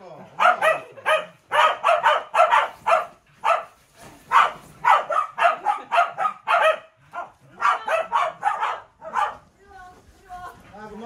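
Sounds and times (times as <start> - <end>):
dogs barking sharply: 0.3 - 9.5.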